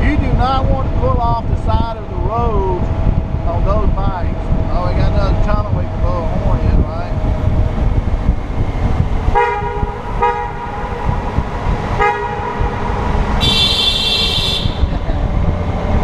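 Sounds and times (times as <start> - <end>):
motorcycle engine running: 0.0 - 16.0
wind noise: 0.0 - 16.0
motorcycle horn honking: 9.3 - 11.0, 12.0 - 15.0.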